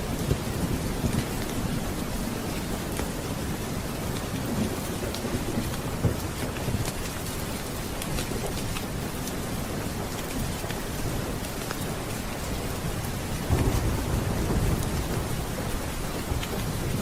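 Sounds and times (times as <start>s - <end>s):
heavy rain: 0.0s - 17.0s
low thunder rolling: 13.4s - 17.0s.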